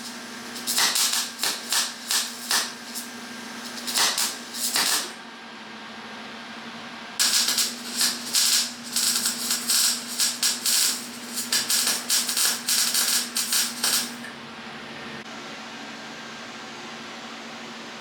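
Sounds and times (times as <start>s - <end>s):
arc welding crackling: 0.0s - 5.2s, 7.2s - 14.3s
steady low hum: 7.0s - 15.3s.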